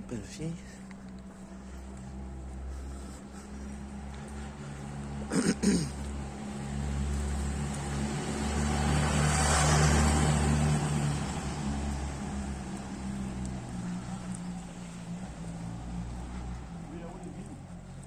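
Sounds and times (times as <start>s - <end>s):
low engine hum: 0.0s - 18.0s
car driving past: 1.6s - 18.0s.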